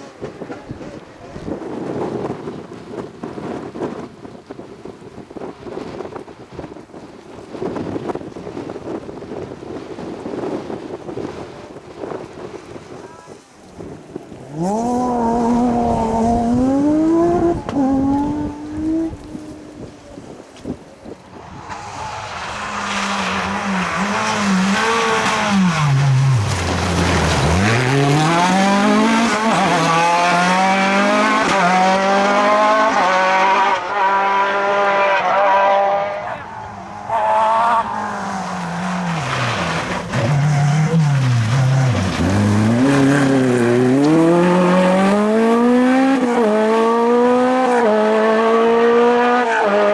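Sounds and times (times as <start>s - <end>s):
rally car engine accelerating: 14.3s - 20.8s, 21.4s - 49.9s
tyres rushing on loose ground: 17.4s - 31.5s, 36.0s - 46.5s.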